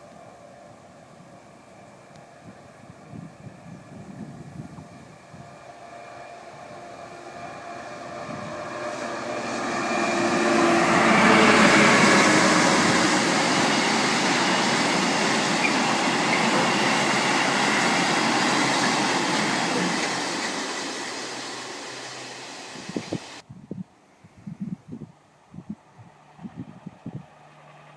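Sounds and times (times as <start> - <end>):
diesel locomotive engine: 0.0 - 23.4, 24.5 - 27.9
freight wagons passing: 5.6 - 23.4.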